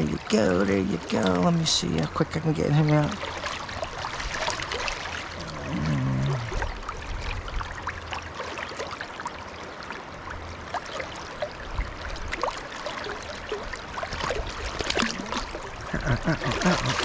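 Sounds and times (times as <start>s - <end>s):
river water flowing and gurgling: 0.0s - 17.0s
water splashes and drips: 0.0s - 17.0s.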